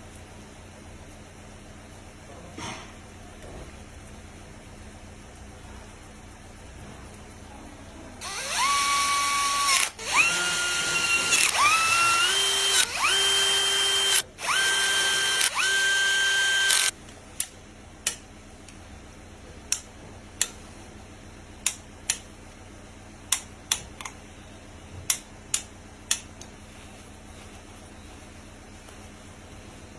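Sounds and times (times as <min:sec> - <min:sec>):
power drill whining: 0:08.2 - 0:16.9
sharp clicks: 0:11.3 - 0:18.2.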